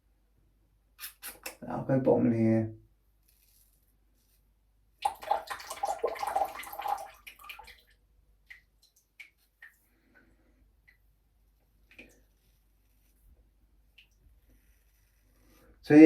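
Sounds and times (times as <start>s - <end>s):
water splashing and swishing: 5.0s - 9.8s
water dripping: 5.0s - 9.9s.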